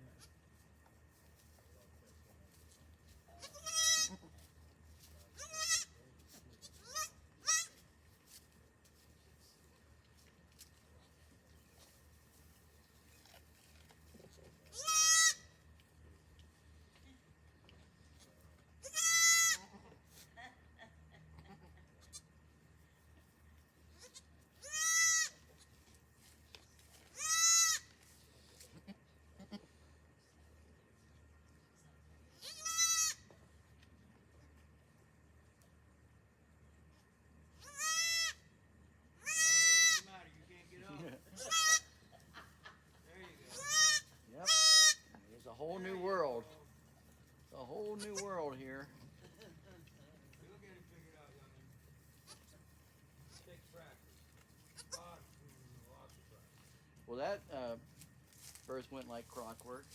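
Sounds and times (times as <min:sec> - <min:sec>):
goat bleating: 0:03.3 - 0:04.5, 0:05.3 - 0:06.0, 0:06.6 - 0:07.8, 0:14.7 - 0:15.5, 0:18.8 - 0:20.0, 0:21.4 - 0:22.3, 0:24.0 - 0:25.7, 0:27.1 - 0:27.9, 0:32.4 - 0:33.3, 0:37.6 - 0:38.4, 0:39.2 - 0:40.1, 0:41.3 - 0:41.9, 0:43.5 - 0:45.2, 0:52.2 - 0:52.5, 0:54.7 - 0:55.1.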